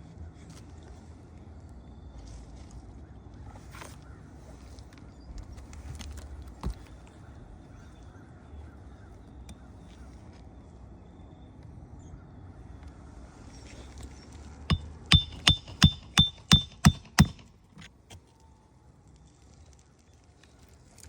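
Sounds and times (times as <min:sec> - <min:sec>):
hammer driving a nail: 0:14.7 - 0:17.5.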